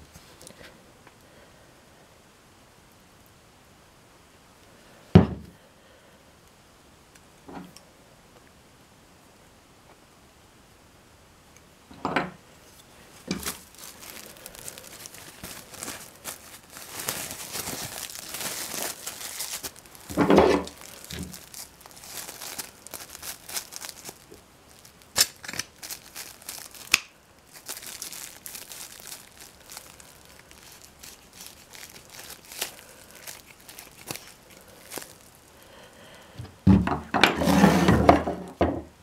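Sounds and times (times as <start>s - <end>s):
crinkling handling noise: 12.1s - 39.0s.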